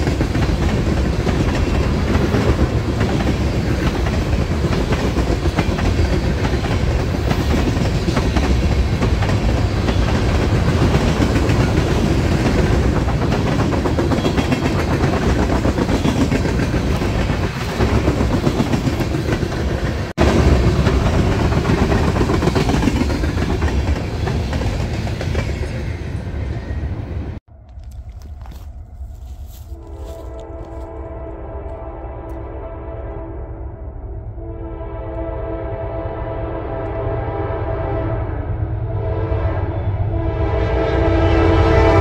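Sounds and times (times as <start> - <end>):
clickety-clack over rail joints: 0.0 - 26.7
train wheels rumbling: 0.0 - 35.9.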